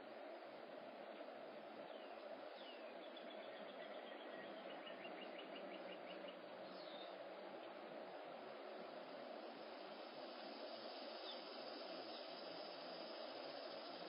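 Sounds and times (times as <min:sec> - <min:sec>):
background hiss: 0:00.0 - 0:14.0
songbird calls: 0:01.9 - 0:08.0.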